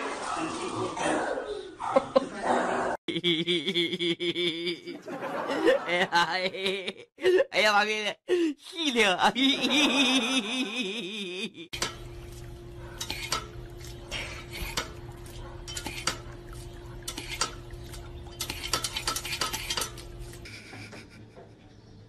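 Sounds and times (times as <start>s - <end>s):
steady low hum: 11.8s - 22.0s
pet water fountain clacking: 13.0s - 20.2s.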